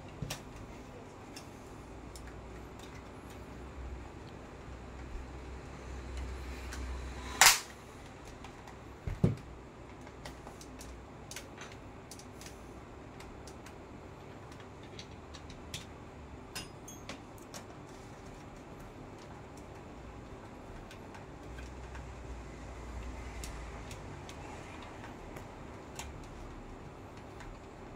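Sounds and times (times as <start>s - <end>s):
low hum: 3.6s - 8.1s
sharp loud click: 7.3s - 7.8s.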